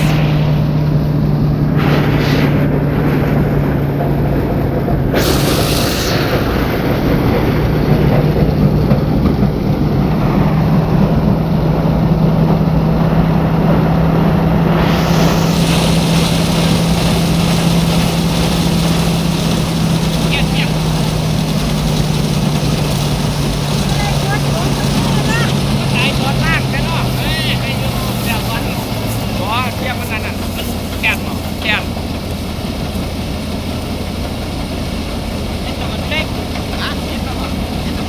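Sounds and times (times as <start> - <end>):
rush of hiss: 0.0 - 2.7, 5.1 - 8.2, 14.7 - 31.9
higher hiss: 0.0 - 3.0, 5.1 - 8.7, 14.7 - 32.9
threshing machine rattling hum: 0.0 - 38.0.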